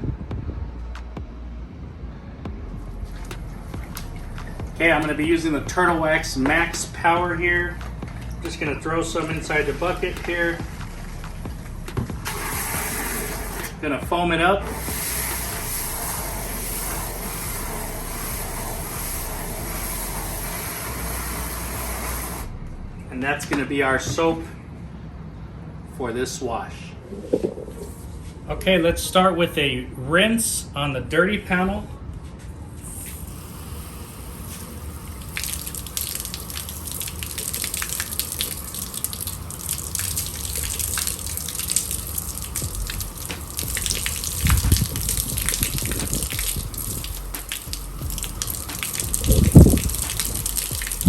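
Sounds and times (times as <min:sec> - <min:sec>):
water jetting into a bucket: 0:03.1 - 0:13.9, 0:14.6 - 0:22.5, 0:32.9 - 0:51.0.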